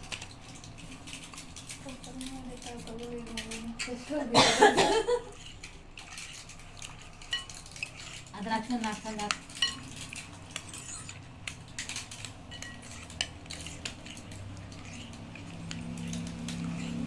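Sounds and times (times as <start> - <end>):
spoon scraping glass bowl: 5.2 - 17.0.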